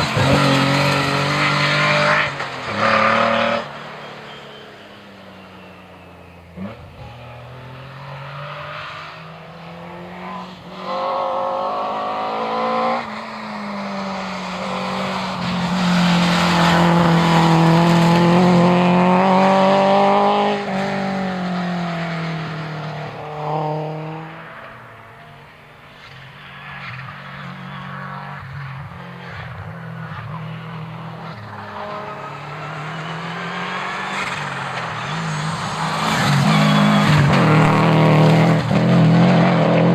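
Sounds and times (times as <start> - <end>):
rally car engine revving: 0.0 - 4.4, 14.5 - 25.1, 29.2 - 39.9.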